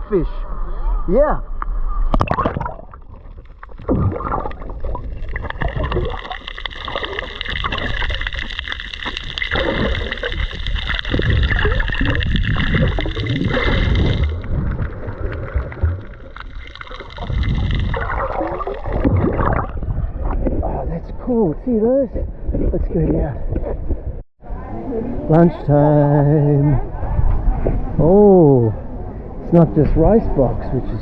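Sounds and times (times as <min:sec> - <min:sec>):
water sloshing and gurgling: 0:01.6 - 0:24.2.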